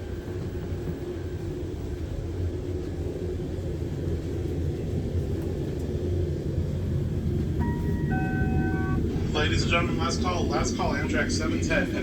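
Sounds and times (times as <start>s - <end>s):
train rumble from inside coach: 0.0s - 12.0s
public-address chime: 7.6s - 10.0s.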